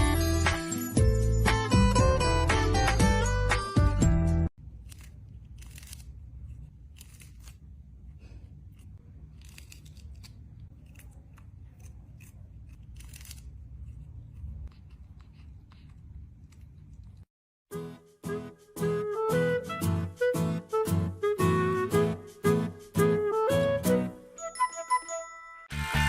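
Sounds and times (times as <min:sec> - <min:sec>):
sharp clicks and crunchy snips: 0:04.8 - 0:06.2, 0:08.8 - 0:13.5.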